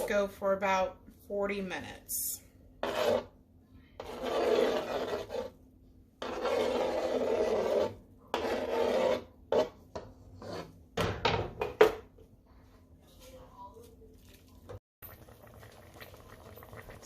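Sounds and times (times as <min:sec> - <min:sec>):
spoon scraping a pot: 0:02.8 - 0:03.4, 0:04.0 - 0:05.6, 0:06.2 - 0:10.8.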